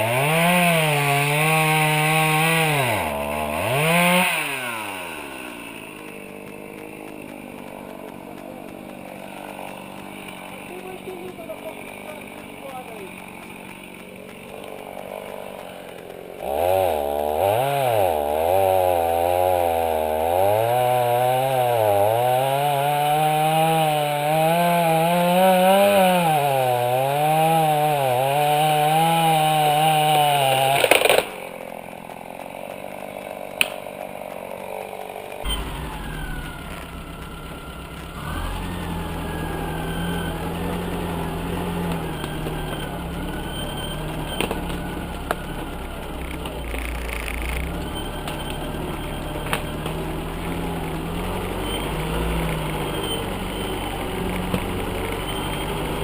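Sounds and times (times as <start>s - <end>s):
small engine revving hard: 0.0s - 6.2s, 7.6s - 31.6s, 33.4s - 56.0s
low steady engine: 35.4s - 56.0s.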